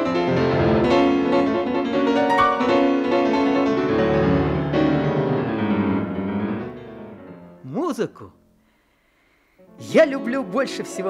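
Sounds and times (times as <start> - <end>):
piano melody with chords: 0.0 - 7.6.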